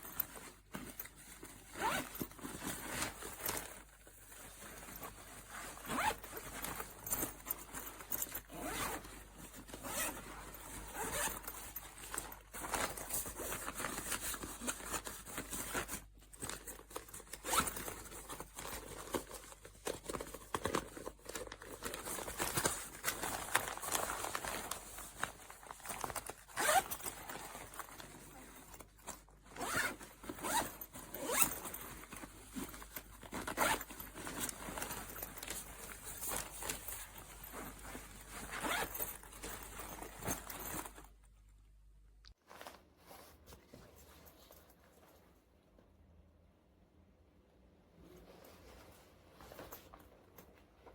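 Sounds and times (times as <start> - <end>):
fabric rustling: 0.0 - 41.5, 42.2 - 45.6, 48.0 - 50.9
zippers opening and closing: 1.8 - 3.6, 5.4 - 7.5, 8.2 - 12.3, 26.4 - 28.4, 29.5 - 36.8, 37.7 - 40.6.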